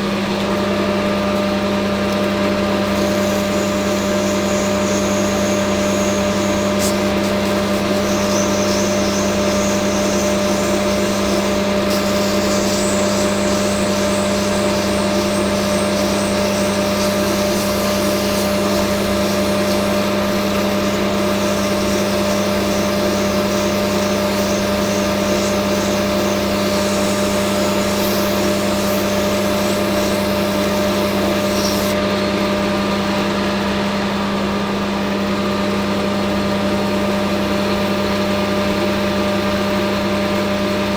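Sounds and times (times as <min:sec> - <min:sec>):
metal lathe motor hum: 0:00.0 - 0:40.9
hiss of cutting on spinning part: 0:02.6 - 0:32.1.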